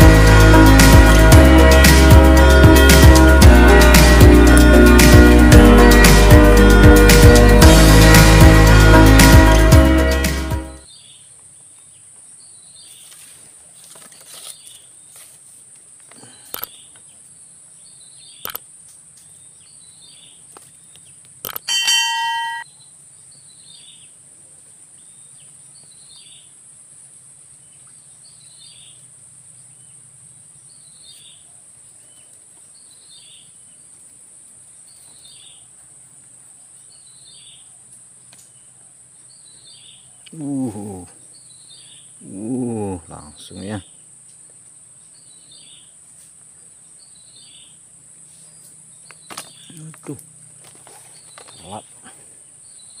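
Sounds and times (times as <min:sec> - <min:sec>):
bird falling call: 0:21.7 - 0:22.6
ringing ding: 0:21.7 - 0:22.7.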